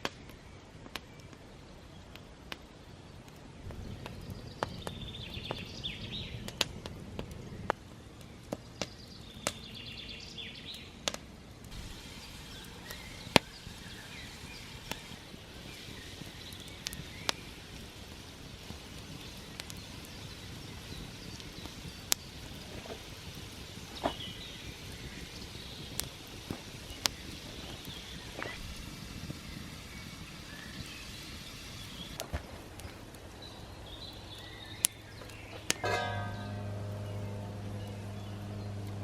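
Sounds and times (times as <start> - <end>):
campfire crackling and popping: 0.0 - 39.0
bird singing: 3.6 - 6.6, 7.4 - 11.0, 12.0 - 17.6, 33.4 - 39.0.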